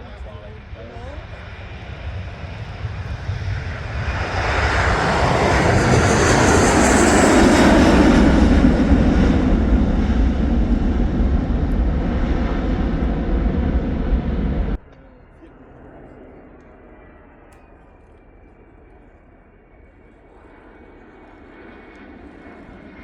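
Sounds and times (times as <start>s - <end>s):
airplane engine rumble: 0.0s - 23.0s.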